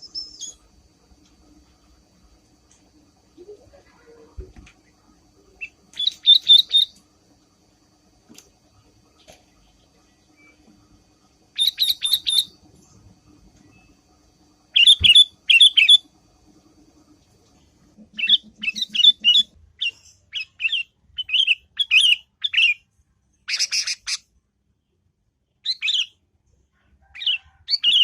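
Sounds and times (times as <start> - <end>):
bulbul chattering call: 5.6 - 7.0, 11.6 - 12.6, 14.8 - 16.0, 18.0 - 22.8, 23.5 - 24.2.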